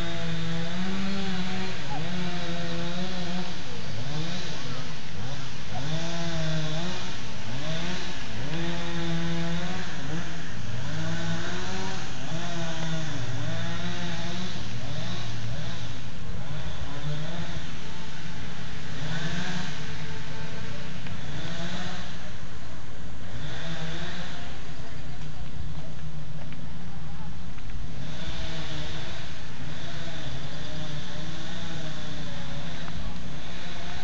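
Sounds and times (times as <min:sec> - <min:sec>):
small engine revving: 0:00.0 - 0:34.0.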